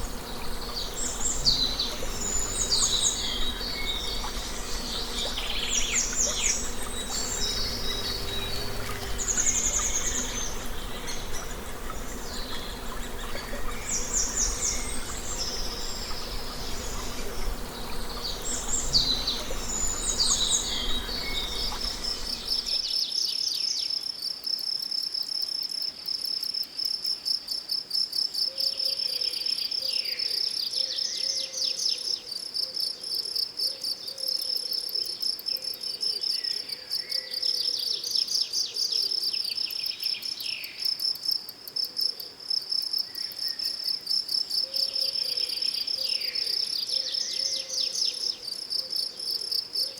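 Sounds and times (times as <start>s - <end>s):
low background hum: 0.0s - 22.9s
songbirds trilling: 0.0s - 23.0s
crickets chirring: 0.0s - 23.1s.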